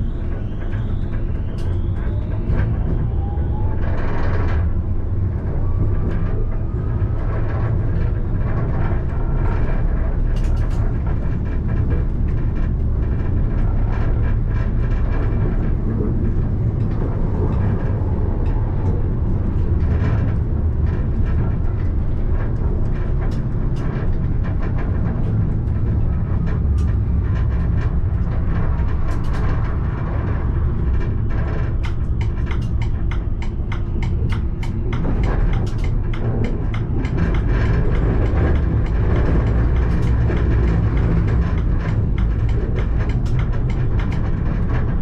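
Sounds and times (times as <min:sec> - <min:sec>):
tram rumbling on rails: 0:00.0 - 0:45.0
wheels clicking over track: 0:26.5 - 0:45.0.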